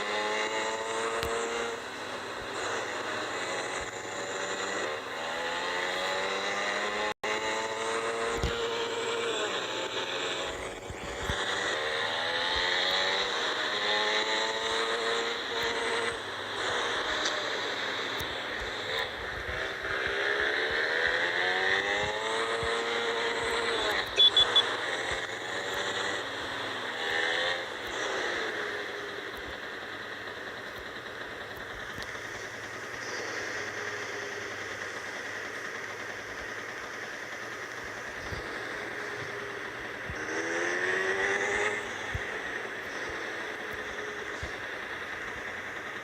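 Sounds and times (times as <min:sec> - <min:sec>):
motorcycle engine running: 0:00.0 - 0:46.0
short high beeps: 0:24.1 - 0:24.8.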